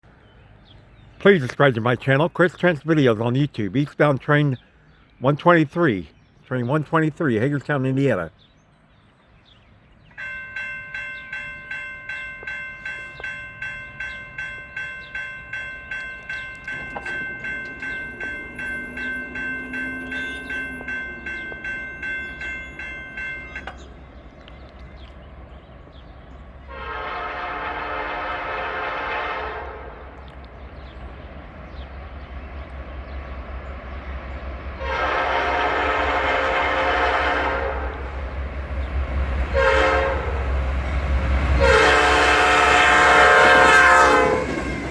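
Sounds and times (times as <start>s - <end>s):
locomotive rumble: 0.1s - 44.9s
crossing bell ringing: 10.1s - 24.3s, 34.8s - 44.9s
locomotive air horn: 26.7s - 30.0s, 34.8s - 38.1s, 39.5s - 40.4s, 41.6s - 44.6s.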